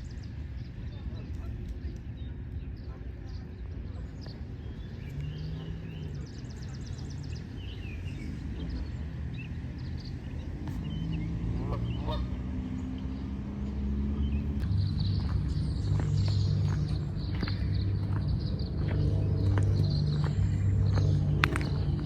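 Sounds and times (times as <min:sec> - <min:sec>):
steady low rumble: 0:00.0 - 0:22.0
geese honking: 0:11.5 - 0:12.4.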